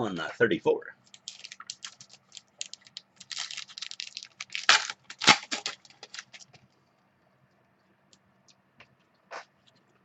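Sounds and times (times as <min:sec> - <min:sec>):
wrapper crinkling and tearing: 0:01.0 - 0:06.6.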